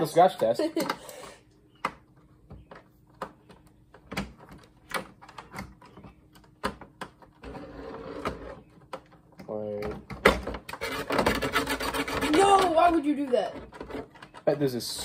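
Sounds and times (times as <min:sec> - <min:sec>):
scraping and rubbing: 0:07.2 - 0:09.0, 0:10.6 - 0:15.0.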